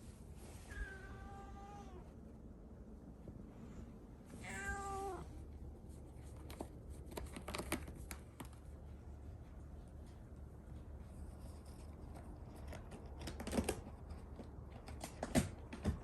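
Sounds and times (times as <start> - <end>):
cat meowing: 0.7 - 2.1, 4.4 - 5.3
light clicks and taps: 6.3 - 16.0.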